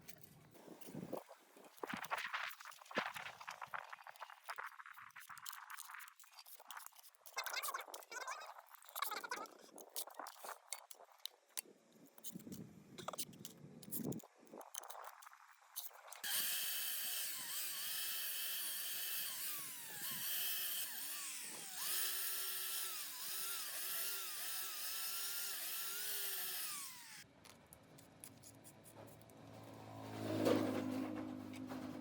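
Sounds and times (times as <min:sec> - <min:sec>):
electric power tool whirring: 0:16.2 - 0:27.2.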